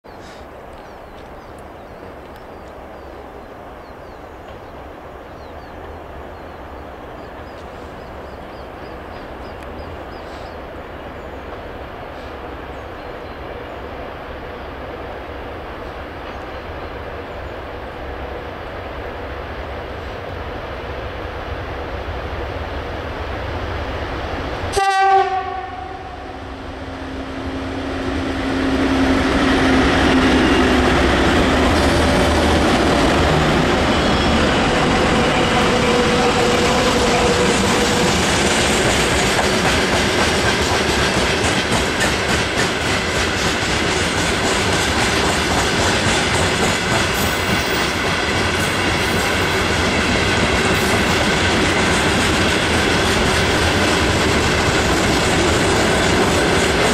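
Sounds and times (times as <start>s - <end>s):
train horn blast: 24.7s - 31.2s, 33.9s - 38.2s
train wheels clattering on rails: 29.0s - 56.9s.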